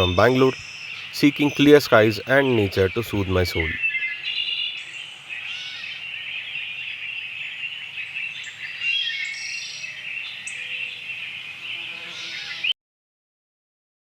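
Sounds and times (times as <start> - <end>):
high whistled bird notes: 0.0 - 5.9
birds chirping: 0.0 - 12.8.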